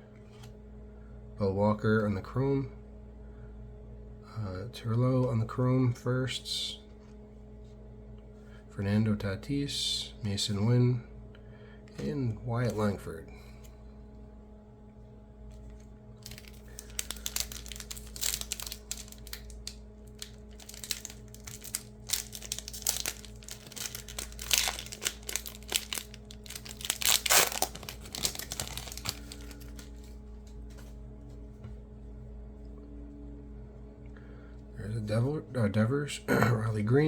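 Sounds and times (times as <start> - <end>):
card pack wrapper tearing and crinkling: 16.2 - 30.2.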